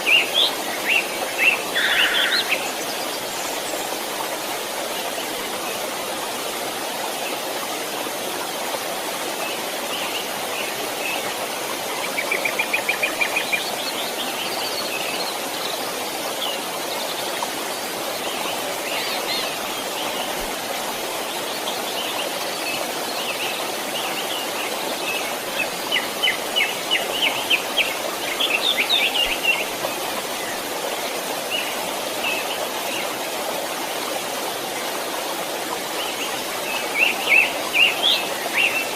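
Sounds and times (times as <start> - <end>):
birds singing: 0.0 - 4.0, 21.2 - 30.6, 36.0 - 38.9
flowing stream rushing: 0.0 - 38.9.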